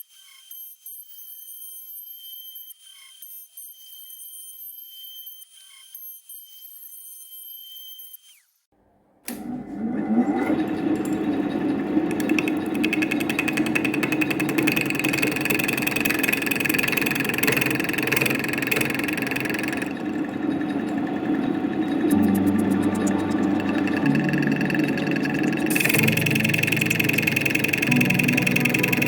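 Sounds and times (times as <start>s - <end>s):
router spindle spinning: 9.3s - 29.0s
bit chattering while cutting: 12.1s - 29.0s.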